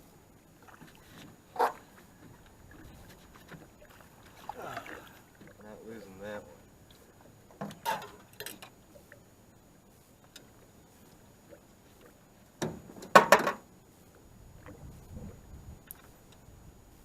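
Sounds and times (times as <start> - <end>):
faint low rumble: 13.6 - 17.0.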